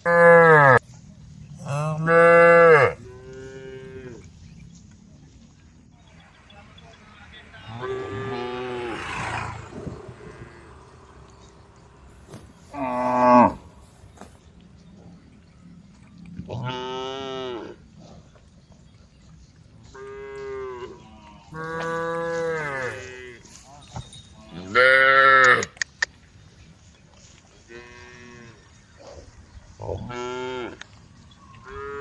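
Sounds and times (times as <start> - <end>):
cows mooing: 0.0 - 0.8, 1.6 - 4.3, 7.6 - 11.5, 12.3 - 14.0, 16.4 - 17.9, 19.9 - 25.8, 29.8 - 30.8.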